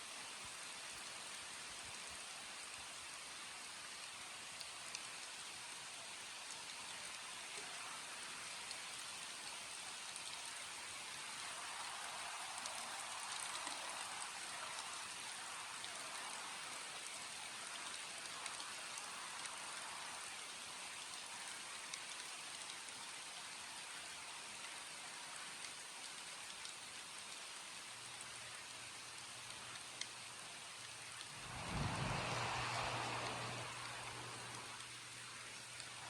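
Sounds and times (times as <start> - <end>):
steady rainfall: 0.0 - 36.0
faint low hum: 28.1 - 36.0.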